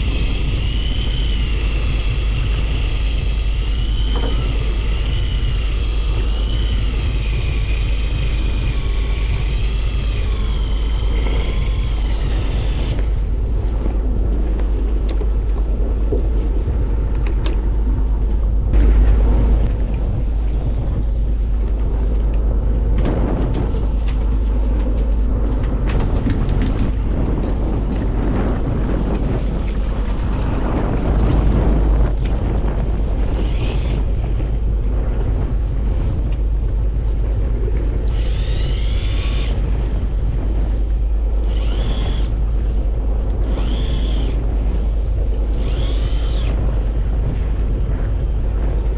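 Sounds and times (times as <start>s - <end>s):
boat engine rumble: 0.0s - 48.9s
wavering high whine: 0.0s - 48.9s
wind buffeting microphone: 0.0s - 48.9s
short beep: 12.9s - 13.7s.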